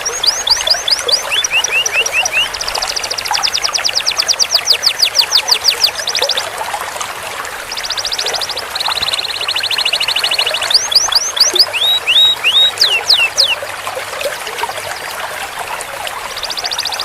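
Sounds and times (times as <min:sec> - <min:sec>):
canary singing trills: 0:00.0 - 0:06.5, 0:07.7 - 0:13.6, 0:16.3 - 0:17.0.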